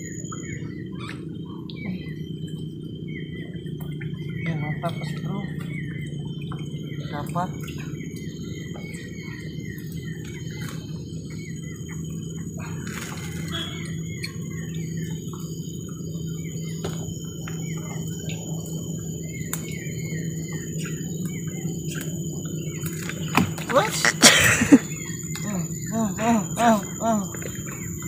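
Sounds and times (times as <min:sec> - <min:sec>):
birds chirping: 0:00.0 - 0:28.0
low background rumble: 0:00.0 - 0:28.0.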